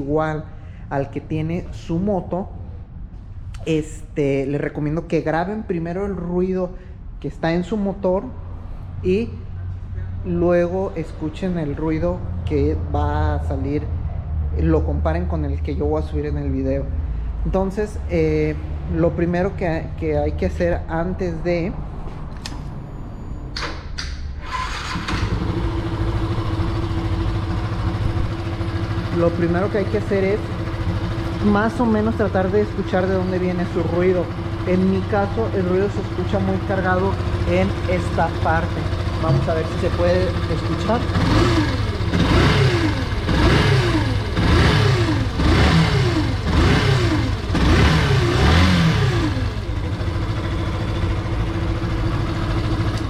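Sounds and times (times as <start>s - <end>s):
engine internal noise: 8.2s - 53.0s
motorcycle engine revving: 24.5s - 53.0s
motorcycle engine idling: 24.6s - 53.0s.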